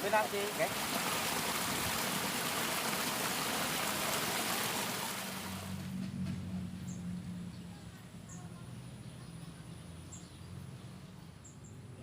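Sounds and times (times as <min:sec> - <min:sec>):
rushing hiss of water: 0:00.0 - 0:05.8.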